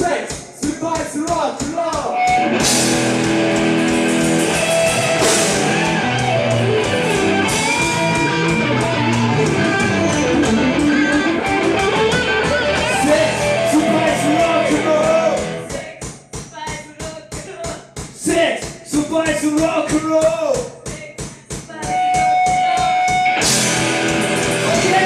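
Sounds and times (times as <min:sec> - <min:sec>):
drum beat: 0:00.0 - 0:25.0
electric guitar lead: 0:02.2 - 0:15.7, 0:22.3 - 0:25.0.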